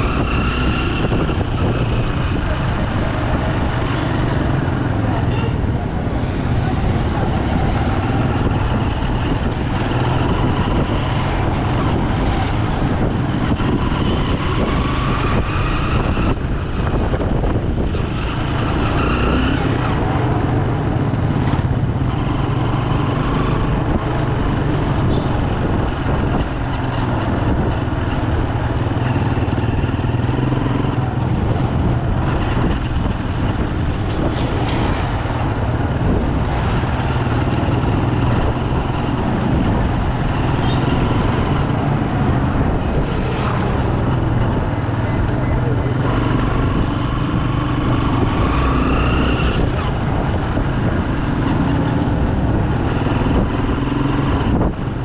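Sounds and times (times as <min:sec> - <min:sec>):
street traffic noise: 0:00.0 - 0:55.0.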